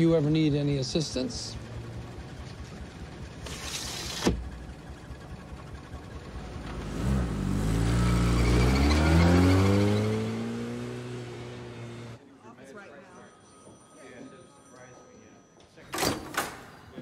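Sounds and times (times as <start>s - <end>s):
car engine accelerating: 0.0s - 12.2s.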